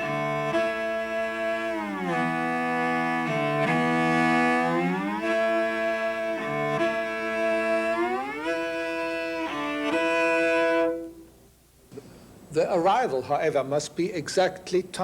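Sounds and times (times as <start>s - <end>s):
cello bowing sustained notes: 0.0s - 11.3s.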